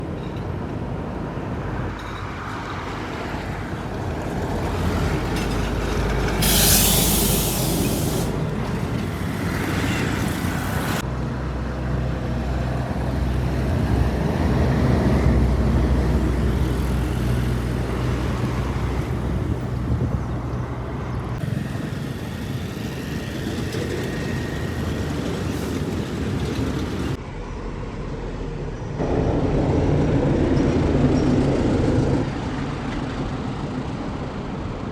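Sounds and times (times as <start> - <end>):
heavy trucks driving by: 0.0 - 34.8
loud hiss: 6.4 - 11.0.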